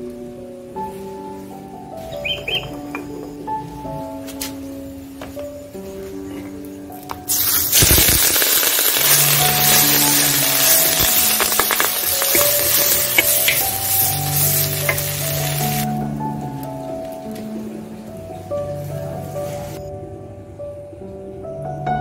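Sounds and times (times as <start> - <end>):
paste sizzling in hot oil: 7.3 - 15.9.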